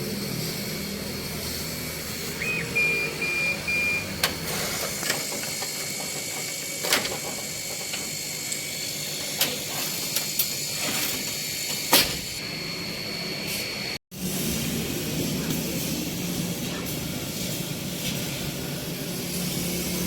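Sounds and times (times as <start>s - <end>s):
machine low hum: 0.0s - 10.2s
laser cutting machine hiss and whine: 0.0s - 20.0s.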